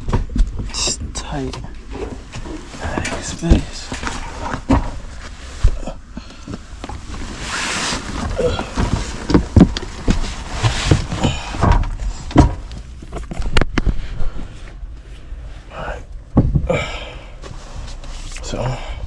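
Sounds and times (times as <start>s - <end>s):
bumps and knocks in attic: 2.0s - 13.7s, 16.3s - 16.9s.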